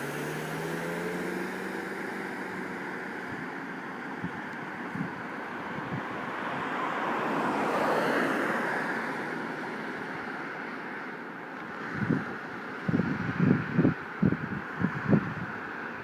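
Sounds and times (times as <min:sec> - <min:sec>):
wind buffeting microphone: 0:03.2 - 0:06.8, 0:11.8 - 0:16.0.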